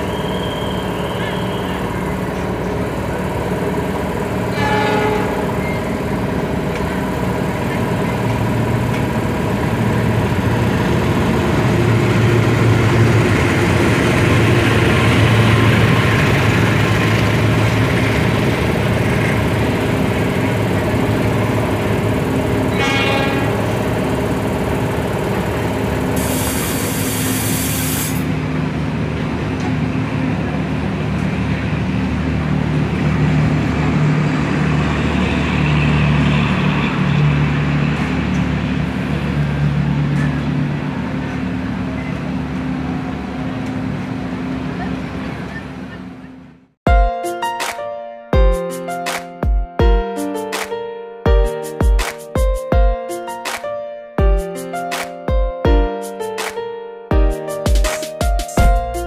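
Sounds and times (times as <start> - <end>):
coaches rolling on rails: 0.0 - 46.6
train engine hum: 0.0 - 47.4
brief hiss: 26.2 - 28.3.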